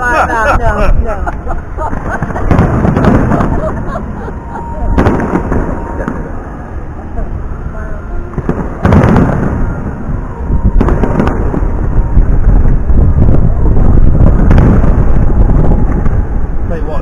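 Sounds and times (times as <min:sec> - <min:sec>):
low rolling rumble of bursts: 0:00.0 - 0:17.0
fireworks bursting in loud bangs: 0:01.8 - 0:06.4, 0:08.4 - 0:09.9, 0:10.6 - 0:12.6, 0:14.2 - 0:15.3.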